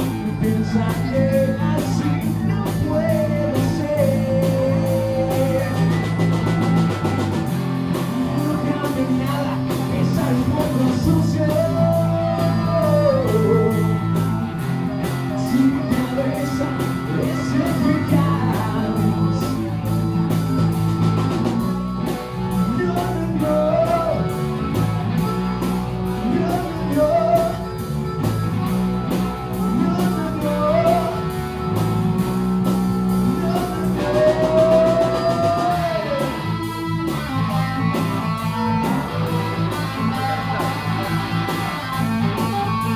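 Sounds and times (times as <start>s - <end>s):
bending lead line: 0.0s - 42.9s
live rock band playing: 0.0s - 42.9s.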